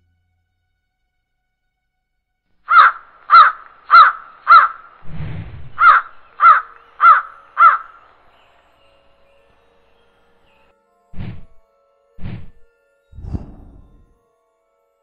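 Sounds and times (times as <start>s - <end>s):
bird calling: 2.7s - 8.5s
low rumble: 5.0s - 5.8s, 13.2s - 14.1s.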